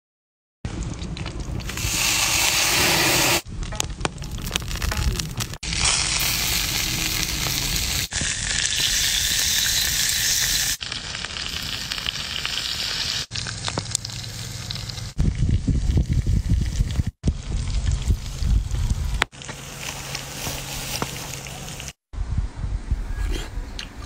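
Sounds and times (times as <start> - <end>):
fish sizzling in hot oil: 1.6 - 3.5, 5.5 - 22.0.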